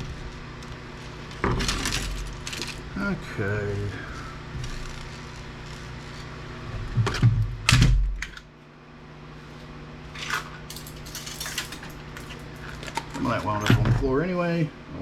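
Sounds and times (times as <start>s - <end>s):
scrap parts clattering: 1.4s - 2.8s, 10.1s - 14.0s.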